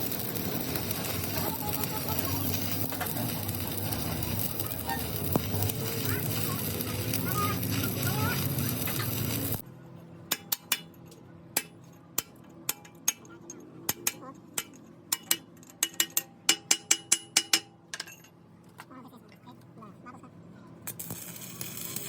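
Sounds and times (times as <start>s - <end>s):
loud noisy machine: 0.0s - 9.6s
hammer tapping on metal: 11.6s - 18.2s.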